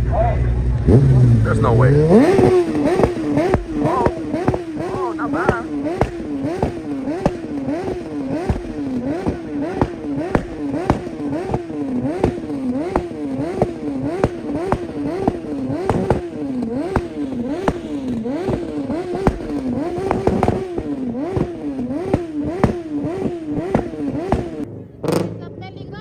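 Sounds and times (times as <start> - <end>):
car engine on launch limiter: 0.0 - 25.4
exhaust pops: 0.6 - 25.3.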